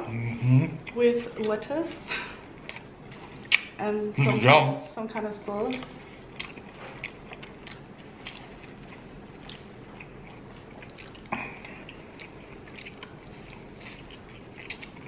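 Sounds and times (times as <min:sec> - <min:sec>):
chewing with wet mouth sounds: 0:02.5 - 0:04.4, 0:05.1 - 0:15.0.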